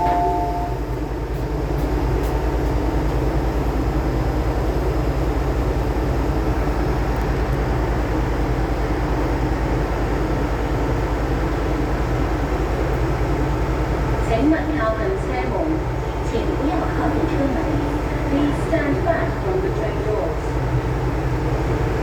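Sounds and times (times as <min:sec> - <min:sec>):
door-closing chime: 0:00.0 - 0:00.8
electric train rumbling: 0:00.0 - 0:22.0.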